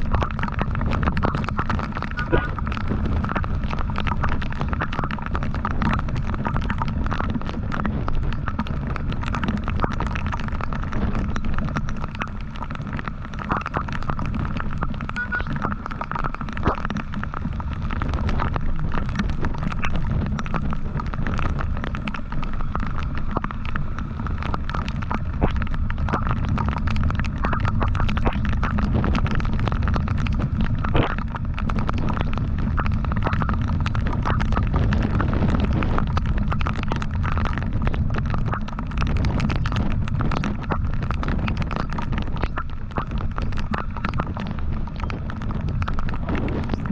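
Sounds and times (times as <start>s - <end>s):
wind buffeting microphone: 0.0s - 12.5s, 14.2s - 46.9s.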